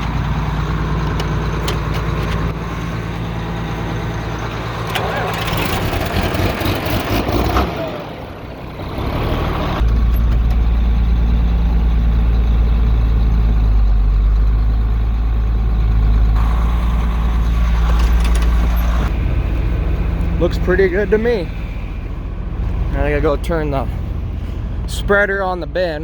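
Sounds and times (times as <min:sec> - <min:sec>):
tractor engine running: 0:00.0 - 0:26.0
heavy low drone: 0:09.6 - 0:26.0.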